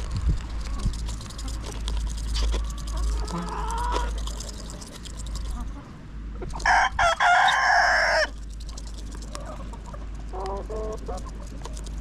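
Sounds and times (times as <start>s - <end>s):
soft chicken clucks: 0.6s - 4.7s, 5.3s - 11.9s
rooster crowing: 6.6s - 8.3s.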